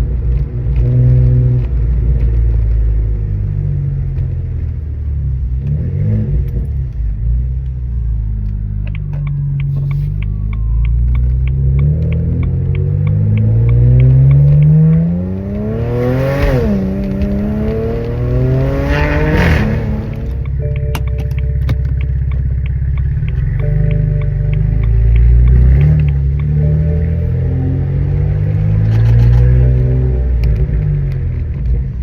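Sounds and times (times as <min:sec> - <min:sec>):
car engine accelerating: 0:00.0 - 0:32.0
regular ticking: 0:08.4 - 0:31.9.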